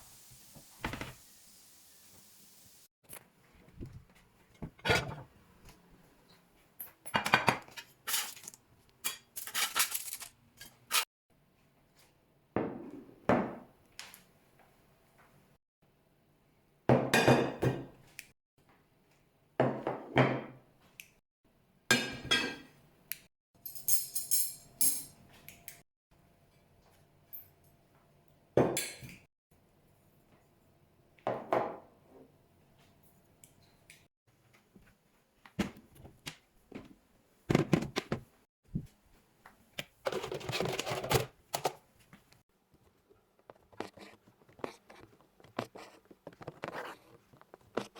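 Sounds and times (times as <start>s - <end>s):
dishes and cutlery clinking: 21.9s - 22.7s.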